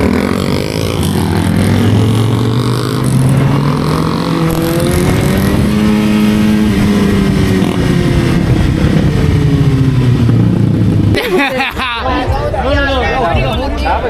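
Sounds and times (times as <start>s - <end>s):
motorcycle engine running: 0.0s - 11.5s.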